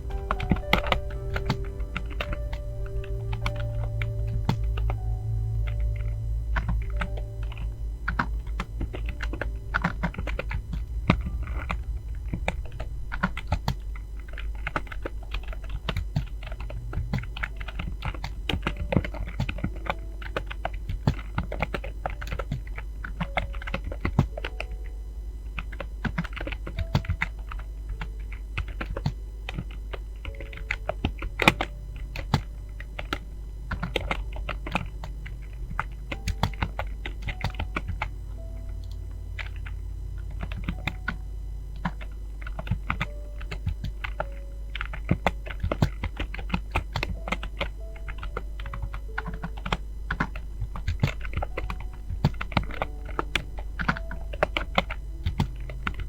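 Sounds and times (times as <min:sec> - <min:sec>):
fast keyboard typing: 0:00.0 - 0:56.0
steady low hum: 0:00.0 - 0:56.0.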